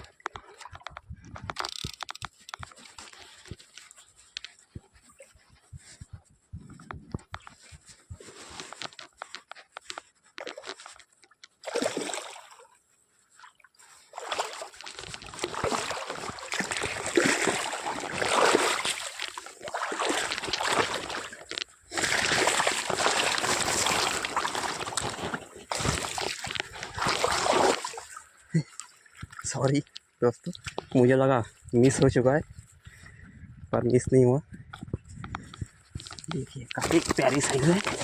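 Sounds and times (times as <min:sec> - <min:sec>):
fish splashing in water: 0:11.6 - 0:12.7, 0:14.1 - 0:28.2.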